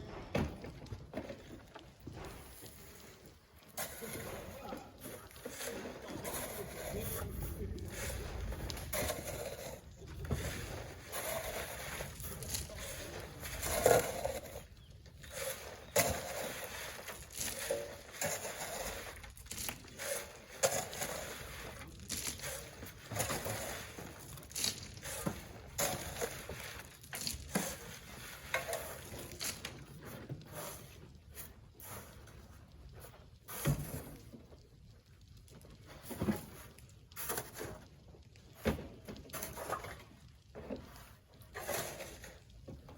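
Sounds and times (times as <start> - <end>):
shovels scraping sand: 2.4 - 32.2, 41.5 - 42.5.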